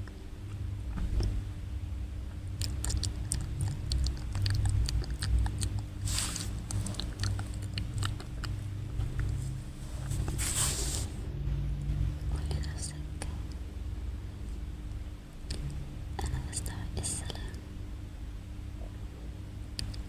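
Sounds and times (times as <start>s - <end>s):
steady low hum: 0.0s - 20.0s
wet mouth clicks and lip smacks: 2.6s - 9.5s
breathy hiss: 5.9s - 7.7s, 9.3s - 11.2s.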